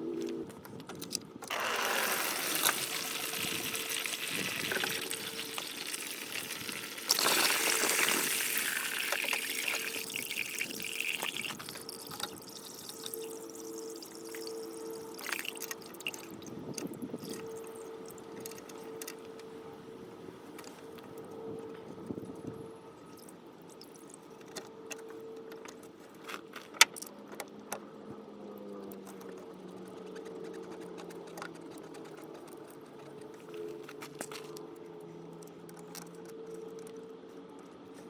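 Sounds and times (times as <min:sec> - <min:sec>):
coolant pouring and trickling: 0:01.5 - 0:18.2.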